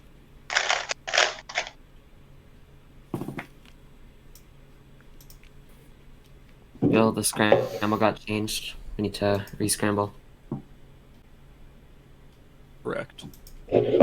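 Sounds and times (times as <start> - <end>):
plastic puzzle cube clacking: 0.5 - 1.8.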